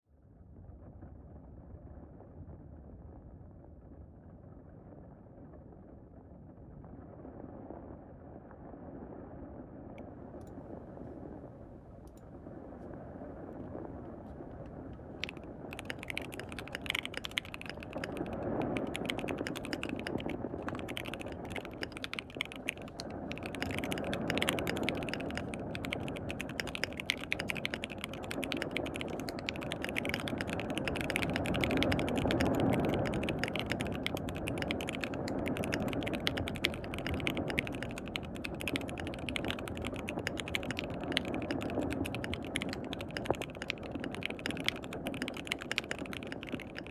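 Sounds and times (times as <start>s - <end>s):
mechanical keyboard typing: 15.1s - 46.9s.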